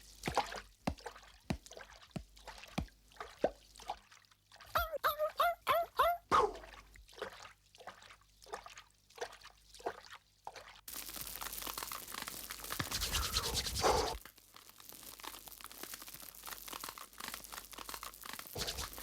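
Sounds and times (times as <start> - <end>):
bonfire crackling: 10.9 - 19.0.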